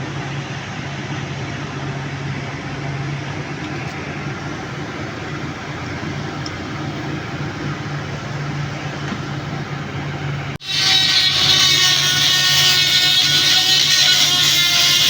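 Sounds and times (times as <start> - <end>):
machine humming: 4.3 - 15.0.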